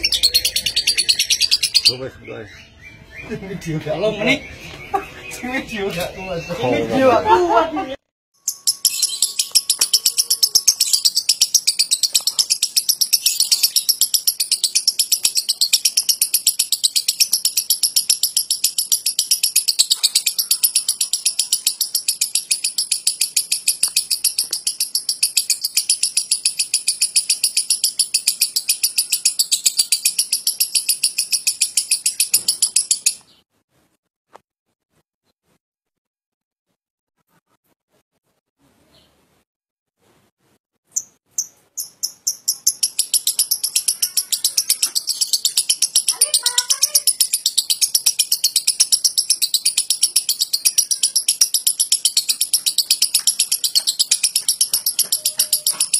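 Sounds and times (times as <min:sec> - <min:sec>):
lovebird chattering trill: 0:00.0 - 0:02.6, 0:08.4 - 0:33.3, 0:40.9 - 0:55.9.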